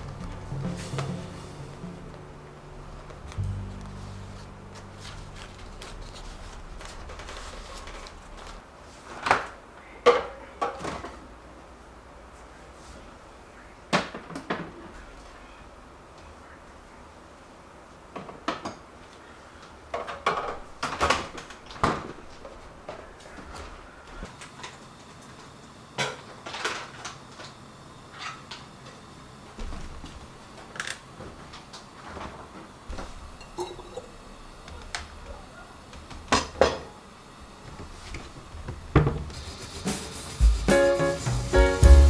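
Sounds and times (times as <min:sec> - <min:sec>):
dishware knocking and clattering: 0:33.4 - 0:34.1.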